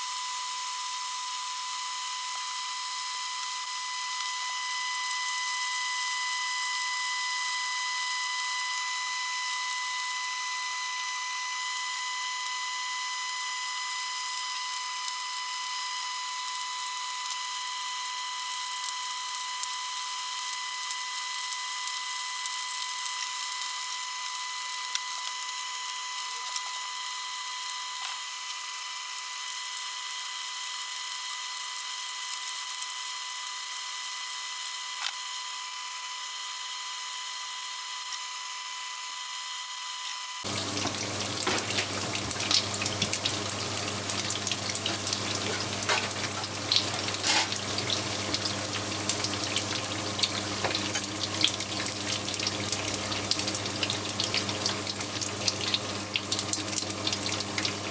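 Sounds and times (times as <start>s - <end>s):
oil sizzling and popping: 0.0s - 35.2s, 40.4s - 57.9s
high hum with hiss: 40.4s - 57.9s.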